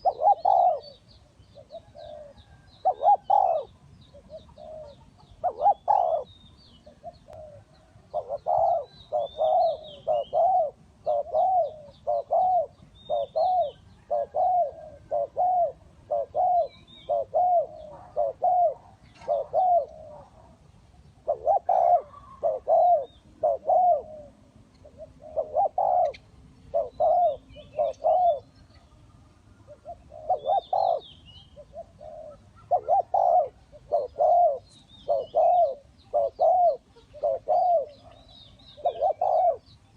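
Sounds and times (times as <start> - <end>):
dove cooing: 0.0 - 39.9
faint high bird chirps: 24.8 - 39.9.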